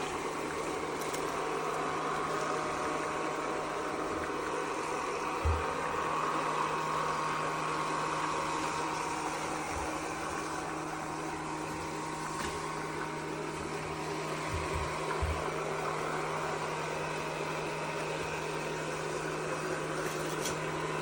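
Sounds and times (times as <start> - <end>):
robot vacuum motor hum and whine: 0.0 - 21.0
soft low thumps: 5.4 - 5.9.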